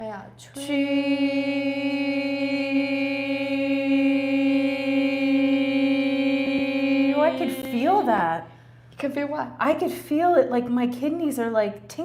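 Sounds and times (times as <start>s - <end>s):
person chanting sustained note: 0.6s - 8.4s.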